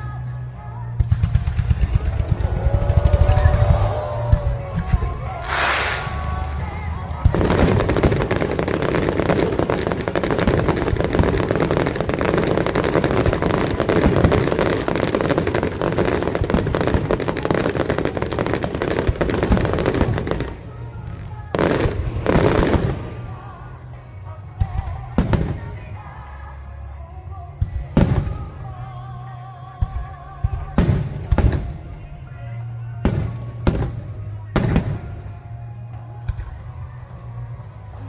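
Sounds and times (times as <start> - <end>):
fireworks crackling: 1.1 - 23.7
firework bursts: 1.3 - 20.8.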